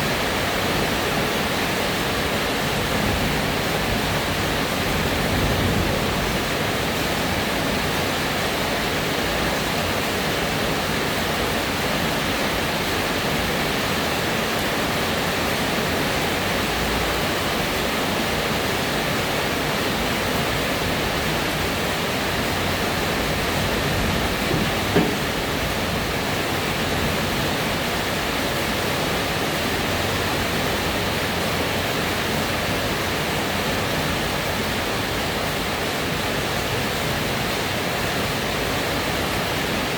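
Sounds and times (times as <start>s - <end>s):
steady rain falling: 0.0s - 39.9s
brief knock: 24.4s - 25.5s.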